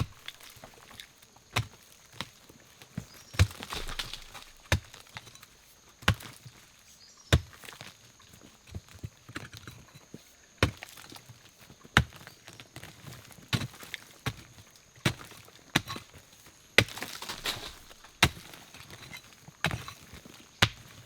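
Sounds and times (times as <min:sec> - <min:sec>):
wood being chopped: 0:00.0 - 0:01.0, 0:03.2 - 0:05.2, 0:07.3 - 0:07.8, 0:12.0 - 0:12.3, 0:16.8 - 0:20.0, 0:20.6 - 0:21.0.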